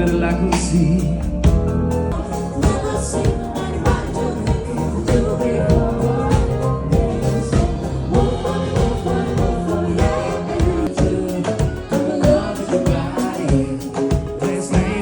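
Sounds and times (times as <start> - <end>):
live band playing pop: 0.0 - 15.0
steady drum beat: 0.0 - 15.0.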